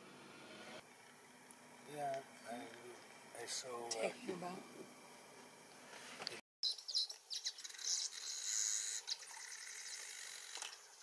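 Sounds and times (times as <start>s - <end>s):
small birds chirping: 6.6s - 11.0s.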